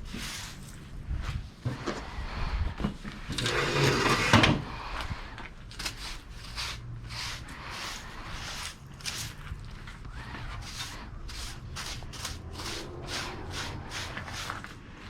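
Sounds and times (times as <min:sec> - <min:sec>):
broom sweeping floor: 0:00.0 - 0:01.8, 0:05.8 - 0:09.6, 0:10.2 - 0:15.0.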